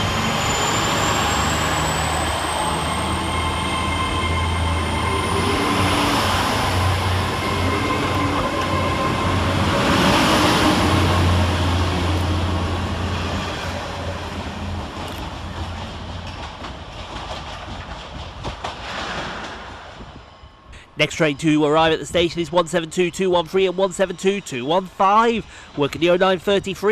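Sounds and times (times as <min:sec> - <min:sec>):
train diesel engine hum: 0:00.0 - 0:18.8, 0:20.2 - 0:26.9
wheels clicking over rail joints: 0:14.4 - 0:19.7.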